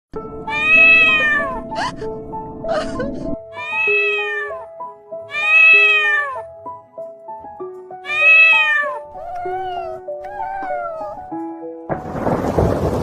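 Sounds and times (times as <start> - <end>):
background music with held notes: 0.1 - 13.0
kitten meowing: 0.5 - 1.7, 3.6 - 4.7, 5.3 - 6.5, 8.0 - 11.3.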